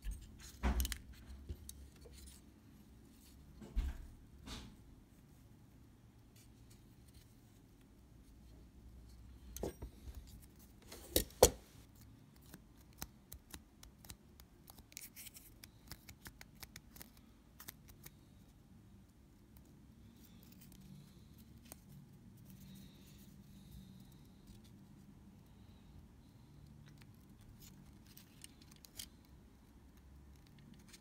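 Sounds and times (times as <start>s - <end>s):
light ticks and small scrapes: 26.6s - 31.0s.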